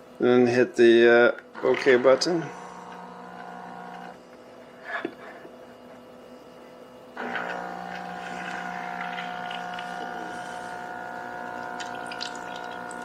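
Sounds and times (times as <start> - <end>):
espresso pump buzzing: 1.5 - 4.2, 7.2 - 13.0
espresso machine hum: 1.6 - 4.6, 7.1 - 13.0.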